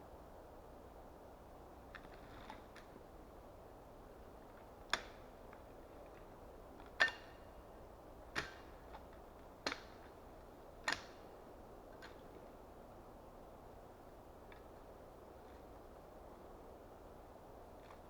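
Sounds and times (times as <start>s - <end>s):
axe chopping wood: 8.4s - 9.0s.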